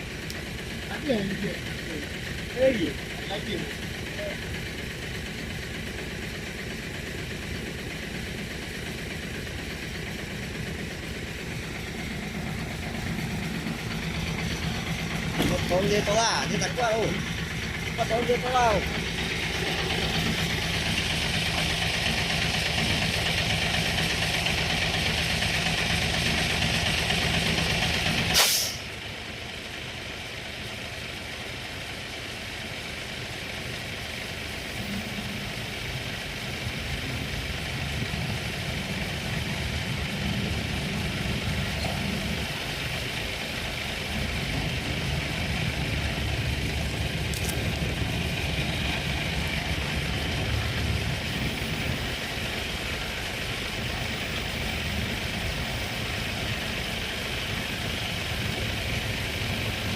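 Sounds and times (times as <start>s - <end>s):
heavy diesel engine running: 0.0s - 59.9s
air release hiss: 28.3s - 28.9s.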